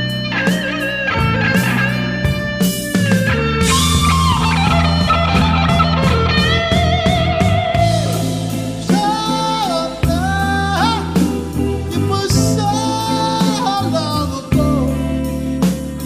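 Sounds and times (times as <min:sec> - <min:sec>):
bass and drums: 0:00.0 - 0:16.0
overdriven electric guitar solo: 0:00.0 - 0:16.0.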